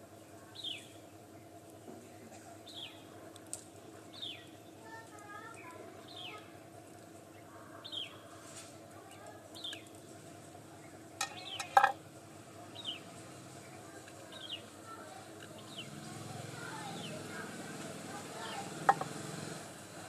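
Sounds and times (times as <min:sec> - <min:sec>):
faint steady hum: 0:00.0 - 0:20.0
bird chirping: 0:00.5 - 0:01.5, 0:09.6 - 0:10.0, 0:10.7 - 0:11.9, 0:12.7 - 0:14.7, 0:15.5 - 0:16.1.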